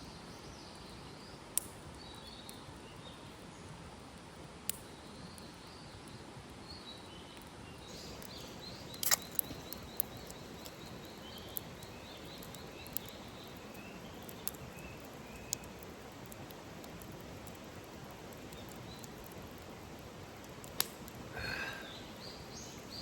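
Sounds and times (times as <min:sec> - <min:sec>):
bird chirping: 0:06.6 - 0:15.8.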